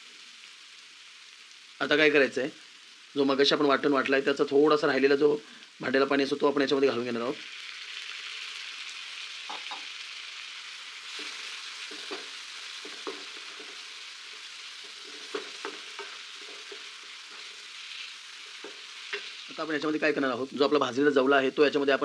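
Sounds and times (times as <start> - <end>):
masala sizzling in a pan: 0.0 - 22.0
wooden spatula scraping a pan: 11.0 - 19.5.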